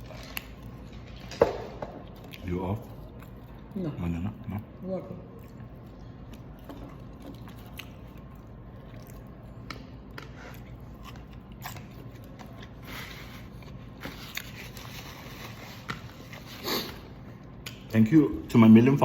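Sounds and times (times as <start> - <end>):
biting and chewing: 5.2 - 16.5.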